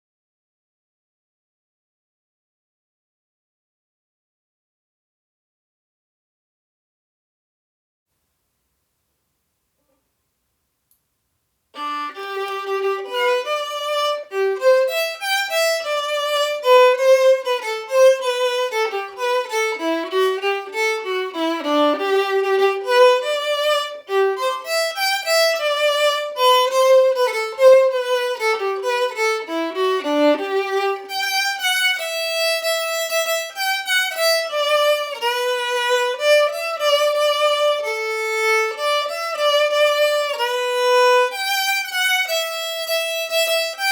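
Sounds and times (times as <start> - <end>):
violin melody: 11.8 - 43.9.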